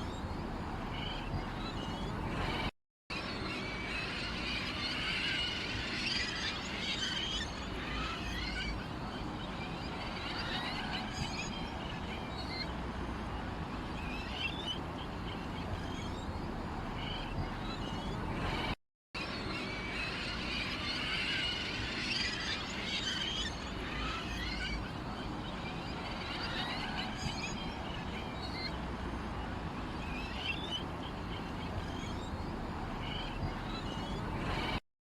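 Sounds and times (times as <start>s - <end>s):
small birds chirping: 0.0s - 2.7s, 6.0s - 18.7s, 22.1s - 28.8s, 29.4s - 34.8s.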